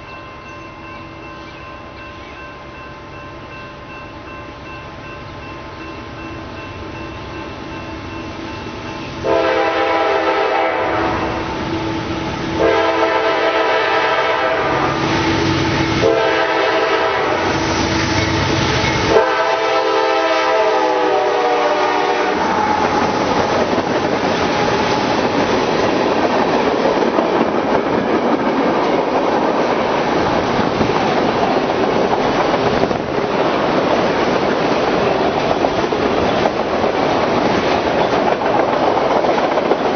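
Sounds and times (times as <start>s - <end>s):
locomotive horn blasts: 9.2s - 11.6s, 12.5s - 22.9s
train wheels clacking on rails: 12.1s - 39.9s.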